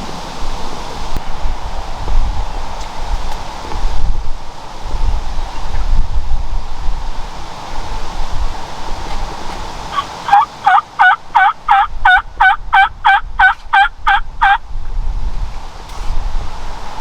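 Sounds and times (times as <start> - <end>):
wind noise: 0.0 - 17.0
turkey yelping: 9.9 - 14.6.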